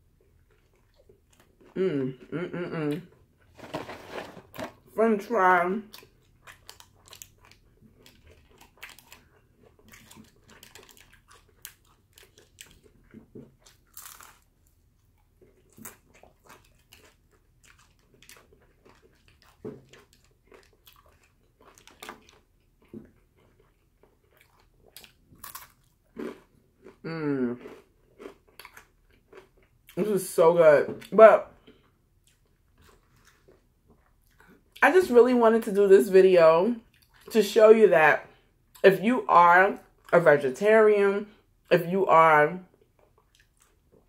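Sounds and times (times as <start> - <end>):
person chewing crunchy fries: 0.0 - 2.3, 5.8 - 30.0, 31.0 - 34.8, 36.8 - 37.3, 42.7 - 44.0.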